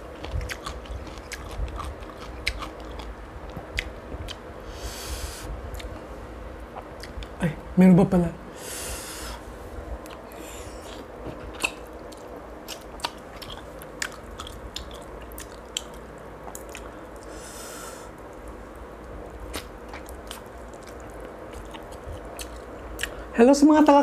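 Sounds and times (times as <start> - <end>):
chewing and lip-smacking: 0.0 - 4.4, 5.7 - 6.0, 10.0 - 17.4, 18.2 - 23.2
hissing breath drawn in: 4.6 - 5.5, 8.5 - 9.5, 17.3 - 18.2.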